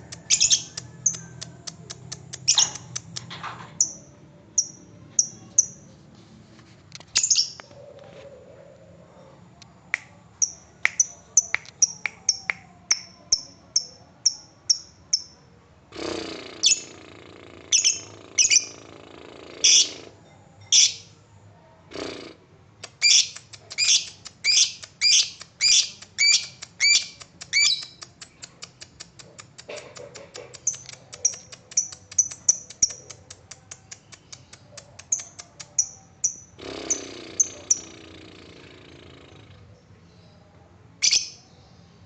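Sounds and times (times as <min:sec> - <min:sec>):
bird chirping: 0:00.2 - 0:03.2, 0:30.5 - 0:33.3.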